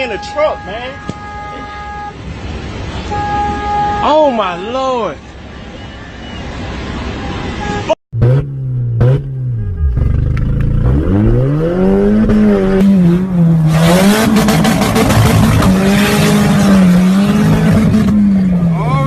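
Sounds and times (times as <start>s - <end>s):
car engine revving: 8.2s - 19.0s.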